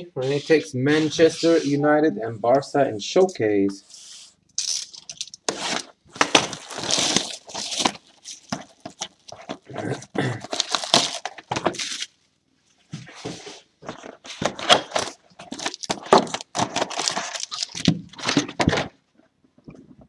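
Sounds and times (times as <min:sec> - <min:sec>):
packaging tearing and crinkling: 0:04.6 - 0:12.2, 0:14.3 - 0:18.7.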